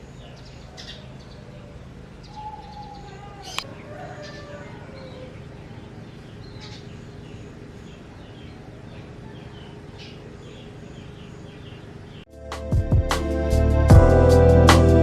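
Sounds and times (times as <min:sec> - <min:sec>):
low background hum: 0:00.0 - 0:12.3
small birds chirping: 0:00.0 - 0:12.3
music: 0:12.3 - 0:15.0.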